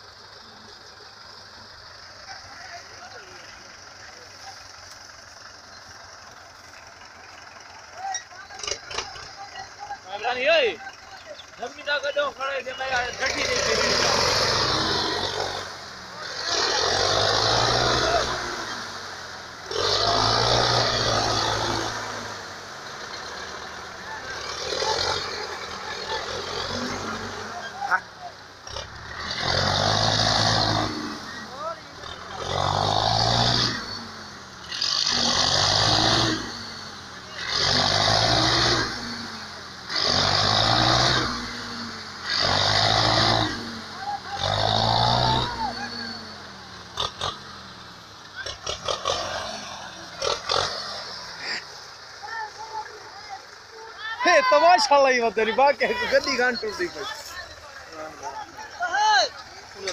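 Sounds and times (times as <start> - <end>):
tractor engines revving hard: 0.0 - 59.9.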